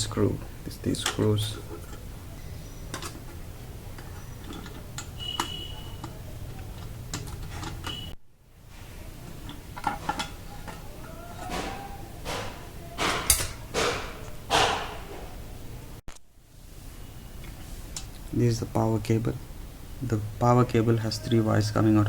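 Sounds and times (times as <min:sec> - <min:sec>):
metal clicks and scrapes: 0:04.0 - 0:08.1
knocks and clatters: 0:11.4 - 0:15.2.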